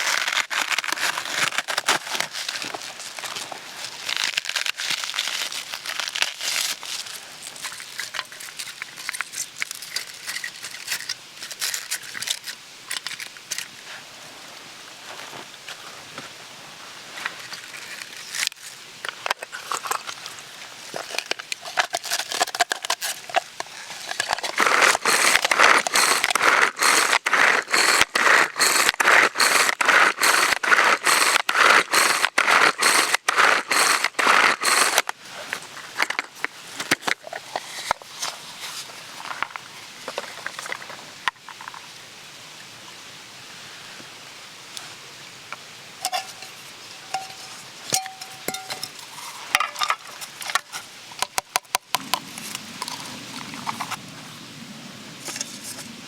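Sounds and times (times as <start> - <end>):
light clicks and crackles: 0.4 - 13.9.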